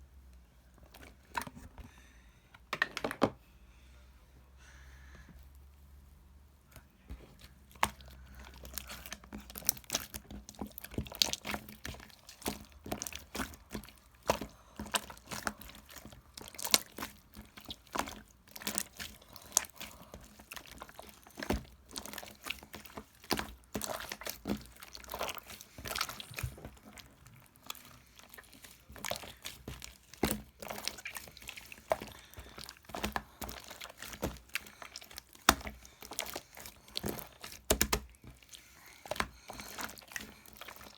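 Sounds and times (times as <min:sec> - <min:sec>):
objects being handled: 0:02.6 - 0:03.4, 0:06.8 - 0:40.9.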